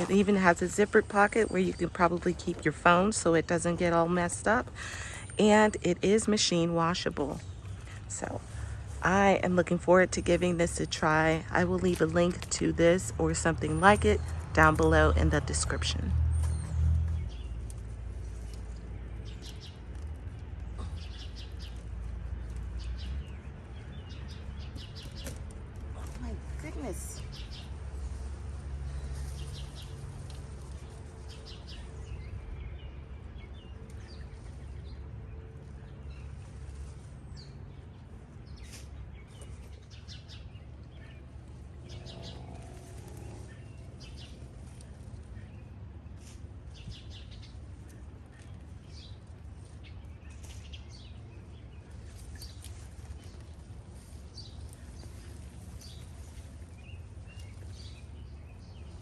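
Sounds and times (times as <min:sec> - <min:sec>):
small songbirds chirping: 0:16.3 - 0:59.0
steady low hum: 0:17.2 - 0:59.0.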